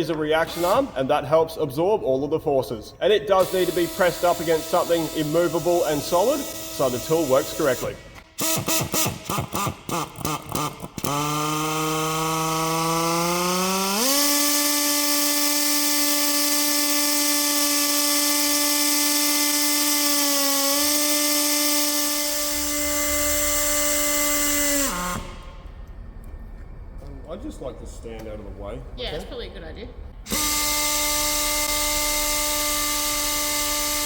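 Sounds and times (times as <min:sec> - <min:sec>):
air tool motor whine: 0:00.0 - 0:01.0, 0:03.4 - 0:25.8, 0:30.3 - 0:34.0.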